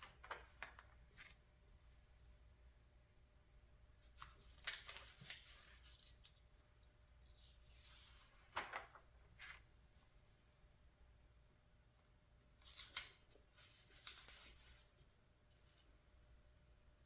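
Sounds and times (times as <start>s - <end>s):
paper pages rustling and flicking: 0.0s - 1.5s, 4.0s - 6.4s, 7.5s - 9.7s, 12.6s - 15.0s.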